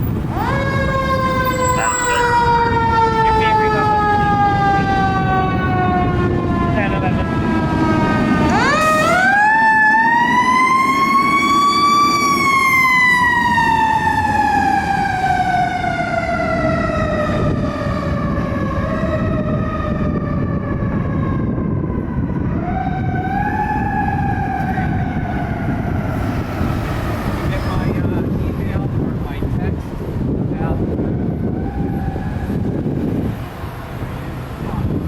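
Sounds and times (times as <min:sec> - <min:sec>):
truck engine: 0:00.0 - 0:09.6, 0:23.3 - 0:35.0
road noise: 0:00.0 - 0:35.0
mechanical siren wailing: 0:00.1 - 0:27.0, 0:30.9 - 0:33.3.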